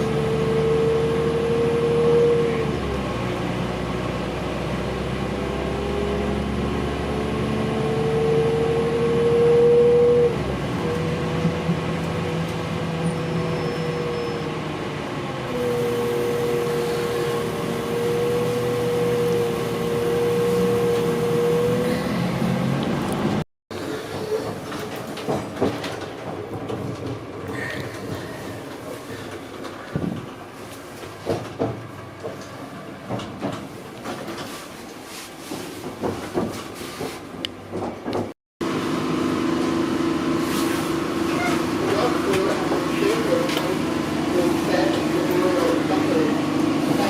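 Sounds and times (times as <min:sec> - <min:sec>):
train whine: 0:08.4 - 0:33.6, 0:38.6 - 0:47.0
train running noise: 0:10.4 - 0:47.0.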